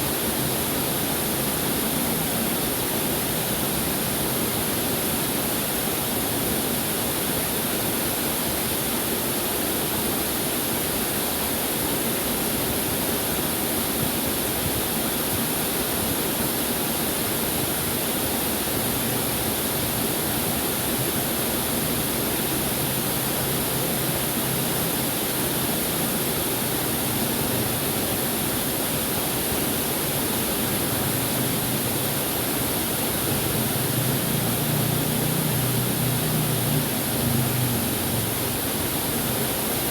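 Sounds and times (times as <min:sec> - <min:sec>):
waterfall rushing: 0:15.6 - 0:39.9.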